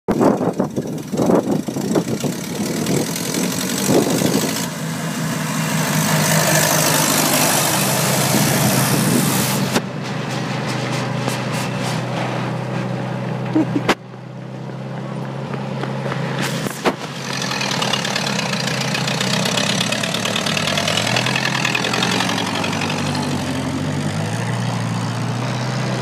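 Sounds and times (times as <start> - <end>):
tractor engine running: 0.1 - 26.0
loud rushing hiss: 4.6 - 9.8.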